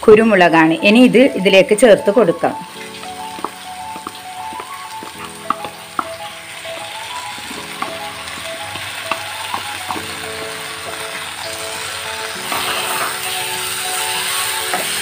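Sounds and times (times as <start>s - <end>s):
food sizzling in a pan: 2.1s - 15.0s
sharp taps: 3.3s - 6.3s, 7.7s - 10.1s.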